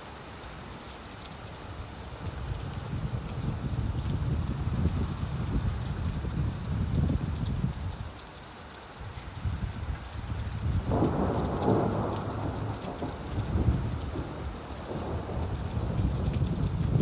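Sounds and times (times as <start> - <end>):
steady rainfall: 0.0 - 17.0
thunder rumbling: 10.4 - 17.0.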